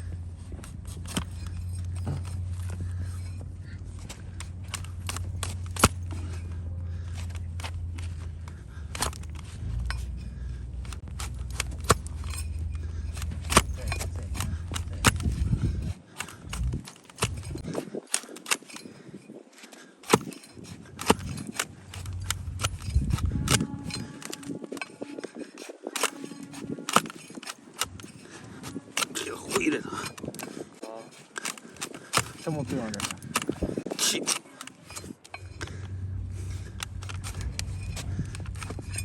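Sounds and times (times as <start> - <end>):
low steady hum: 0.0 - 17.7, 20.2 - 25.2, 34.6 - 39.0
hoof-trimming tools clicking: 0.0 - 39.0.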